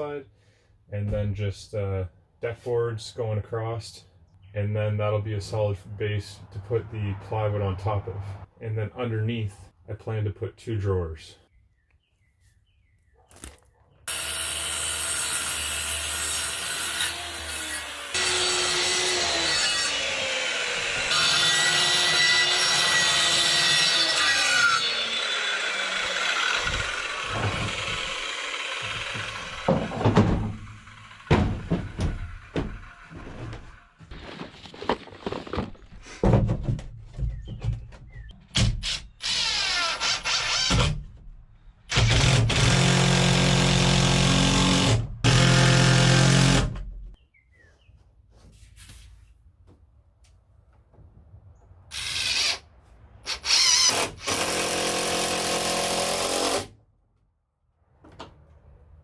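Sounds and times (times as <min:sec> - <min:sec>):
saw cutting wood: 0:14.1 - 0:34.9, 0:38.5 - 0:41.1, 0:41.9 - 0:46.8, 0:51.9 - 0:52.7, 0:53.3 - 0:56.8
power drill driving screws: 0:38.8 - 0:41.0, 0:41.9 - 0:46.8, 0:51.9 - 0:52.6, 0:53.3 - 0:56.7.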